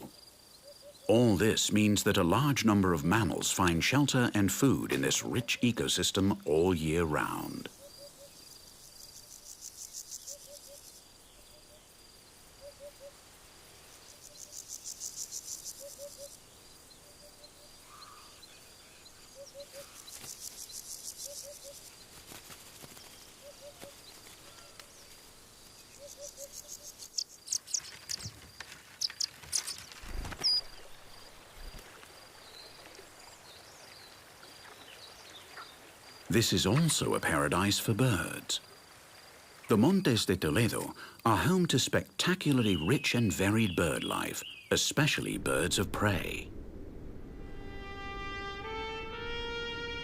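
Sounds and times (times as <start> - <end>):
insects trilling: 4.1 - 41.8
soft low two-note calls: 47.3 - 50.0.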